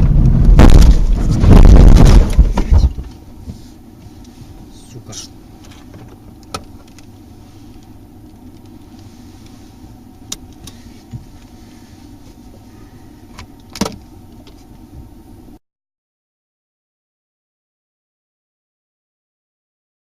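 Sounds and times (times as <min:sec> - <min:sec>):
car engine rumble: 0:00.0 - 0:15.6
road noise: 0:00.0 - 0:15.6.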